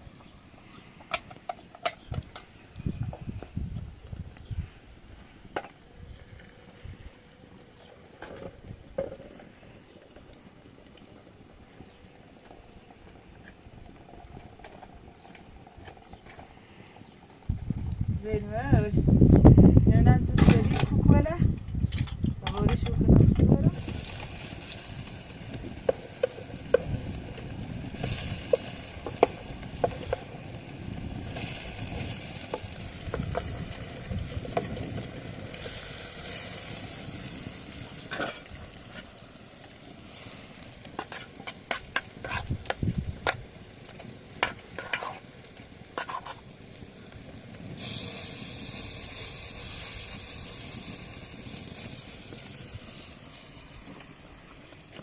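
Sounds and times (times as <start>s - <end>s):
food sizzling in a pan: 23.7s - 43.4s, 44.4s - 54.4s.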